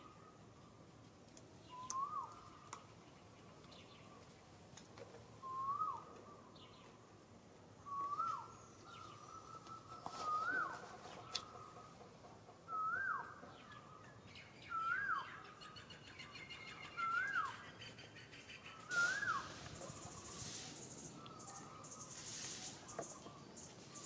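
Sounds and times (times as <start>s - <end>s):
bird whistled call: 1.7s - 2.4s, 5.4s - 6.1s, 7.8s - 10.8s, 12.7s - 13.4s, 14.6s - 15.4s, 16.1s - 17.6s, 18.7s - 24.0s.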